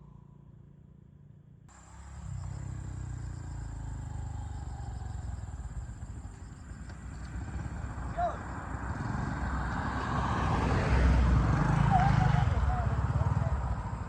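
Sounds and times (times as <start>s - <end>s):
low engine rumble: 1.7s - 9.0s
high-pitched insect drone: 1.8s - 6.7s.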